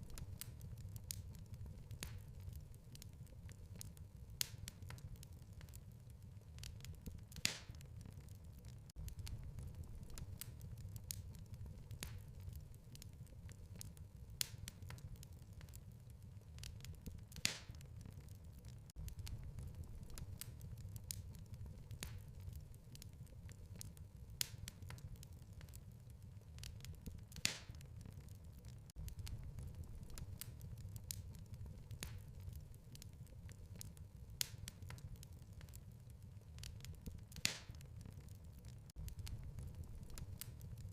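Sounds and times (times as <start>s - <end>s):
low rumble of flames: 0.0s - 40.9s
wood fire crackling and popping: 0.0s - 40.9s
low steady rumble: 9.0s - 12.9s, 19.0s - 22.7s, 29.0s - 32.9s, 39.0s - 40.9s.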